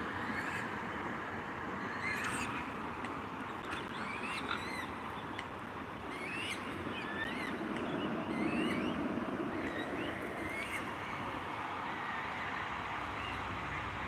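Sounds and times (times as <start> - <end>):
small birds chirping: 1.8 - 11.4.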